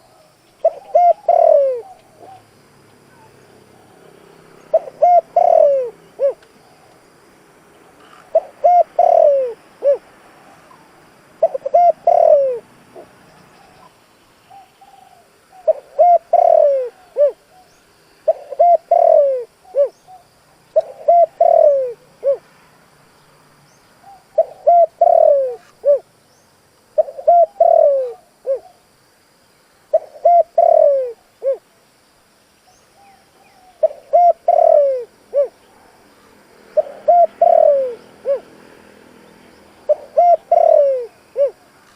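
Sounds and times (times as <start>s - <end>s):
dove cooing: 0.0s - 6.9s, 8.0s - 10.1s, 10.7s - 13.9s, 14.5s - 22.5s, 24.0s - 26.1s, 27.0s - 28.8s, 29.9s - 31.7s, 33.0s - 35.9s, 36.7s - 38.7s, 39.8s - 41.8s.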